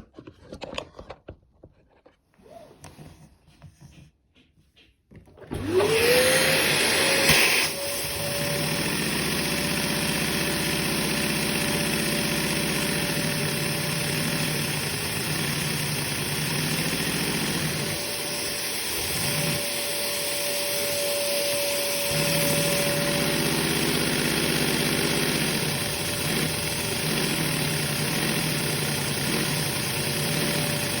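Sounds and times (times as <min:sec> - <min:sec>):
toy vacuum engine piston beat: 0:08.6 - 0:20.8, 0:21.8 - 0:31.0.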